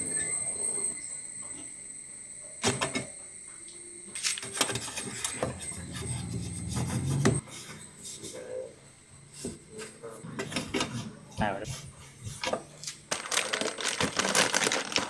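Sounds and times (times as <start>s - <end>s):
scraping rubbing sound: 4.7s - 8.4s.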